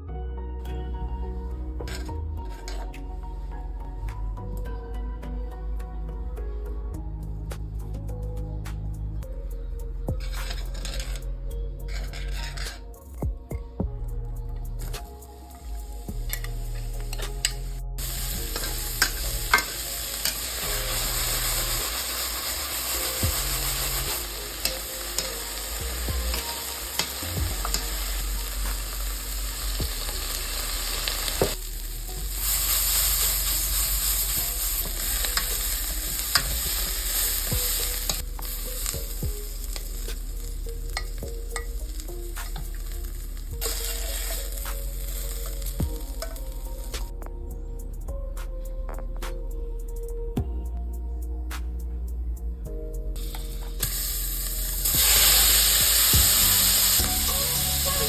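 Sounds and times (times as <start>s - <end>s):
utensil clicking and scraping pan: 10.2s - 11.3s, 11.9s - 12.9s
food sizzling in frying pan: 15.3s - 47.1s, 53.2s - 58.0s.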